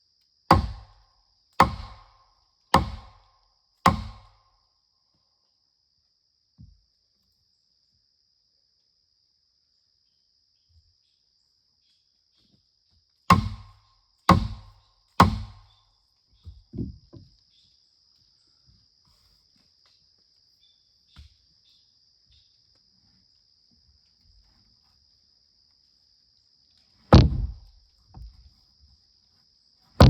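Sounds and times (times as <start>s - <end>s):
high insect trill: 0.0s - 30.0s
tool striking wood: 0.5s - 1.0s, 1.6s - 2.2s, 2.8s - 4.4s, 13.3s - 15.7s, 27.1s - 27.7s
soft knocks: 16.5s - 17.3s, 27.2s - 28.4s.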